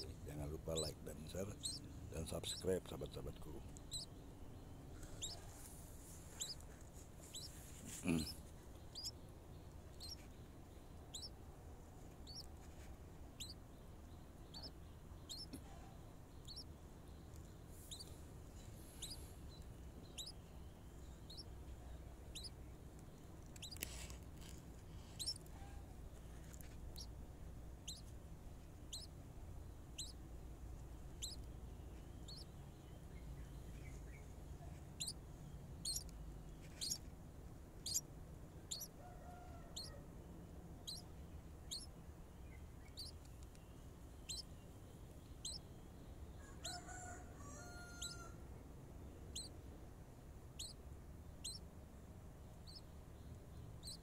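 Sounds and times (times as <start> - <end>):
small bird chirping: 0.0 - 11.4, 12.0 - 37.1, 37.8 - 40.0, 40.8 - 48.3, 49.0 - 49.6, 50.5 - 51.7, 52.4 - 54.0.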